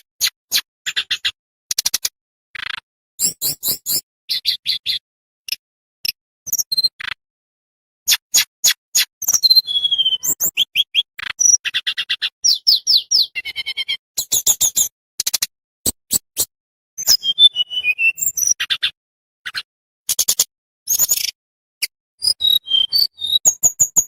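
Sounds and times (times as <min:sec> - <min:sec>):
songbird singing: 0:09.2 - 0:14.9.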